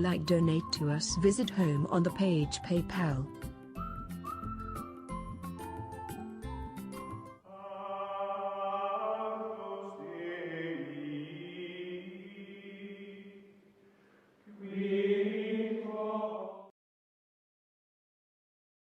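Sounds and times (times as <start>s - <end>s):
slow choir-like chords: 7.4s - 13.6s, 14.4s - 16.7s.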